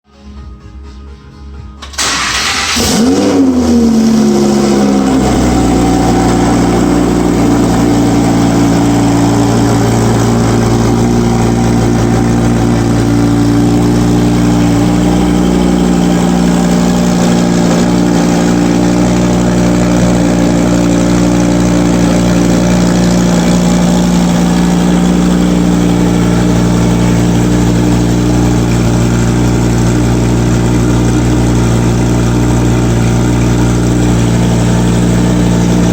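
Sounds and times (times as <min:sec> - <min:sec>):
sports car engine starting and idling: 0:01.7 - 0:35.9.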